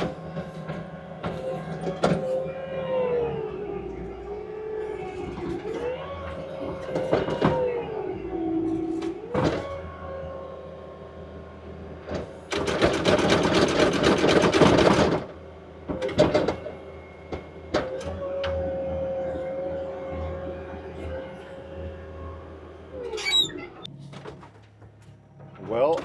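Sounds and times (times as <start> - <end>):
diesel engine under load: 0.0 - 26.0
rapid mechanical rattle: 12.5 - 15.3.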